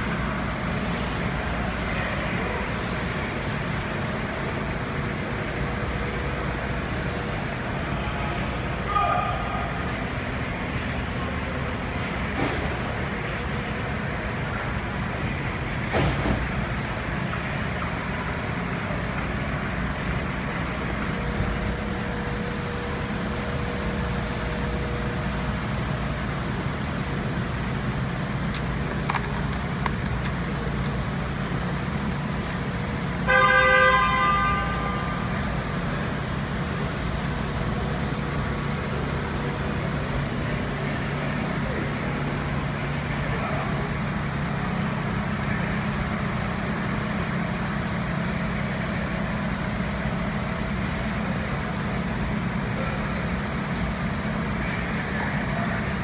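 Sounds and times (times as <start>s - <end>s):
traffic noise: 0.0s - 56.0s
car horn honk: 33.3s - 35.2s.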